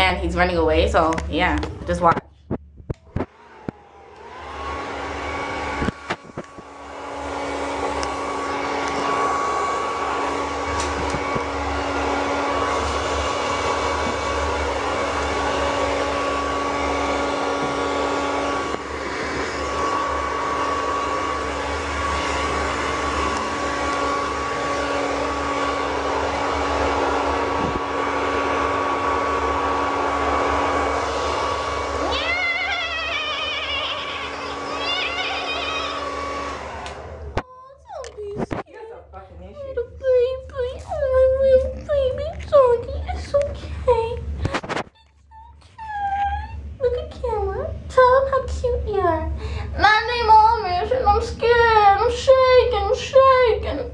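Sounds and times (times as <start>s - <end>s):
hair dryer running: 3.0s - 53.9s.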